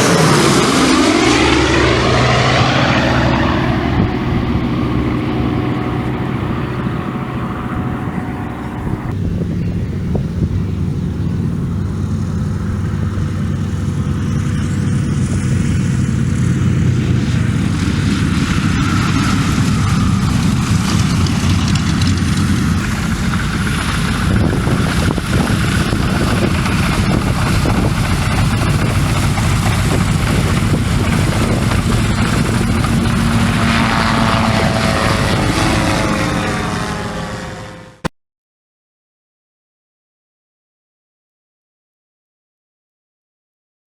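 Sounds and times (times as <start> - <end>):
propeller aircraft engine running: 0.0 - 38.1.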